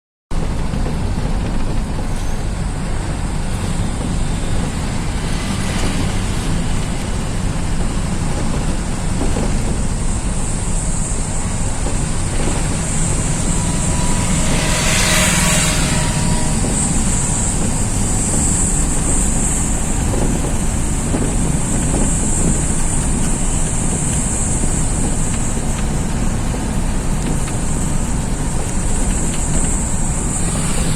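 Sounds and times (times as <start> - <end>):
bus engine and road rumble: 0.3 - 30.9.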